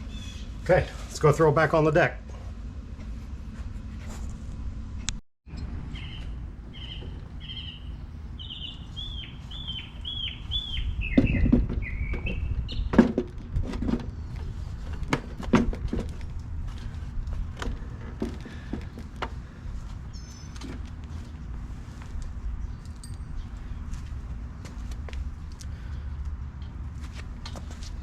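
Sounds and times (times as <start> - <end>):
songbird chirping: 5.9 - 13.0, 18.4 - 26.0
sharp knocks and clunks: 11.0 - 19.6.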